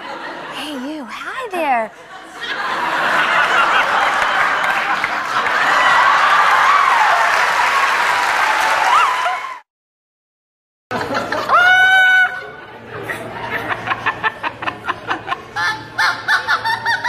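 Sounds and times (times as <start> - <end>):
applause: 3.4 - 9.6
parrot laugh-like chattering: 15.3 - 17.0.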